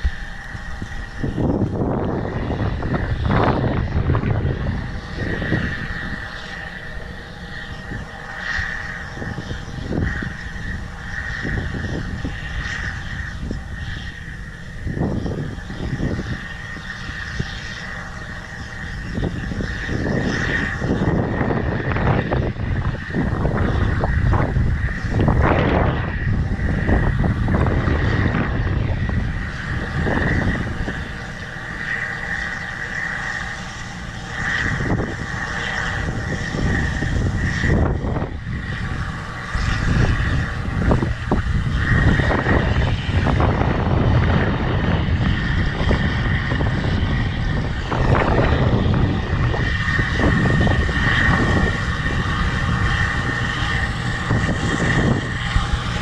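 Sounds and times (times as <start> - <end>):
combine harvester running: 0.0 - 56.0
wind buffeting microphone: 0.0 - 56.0.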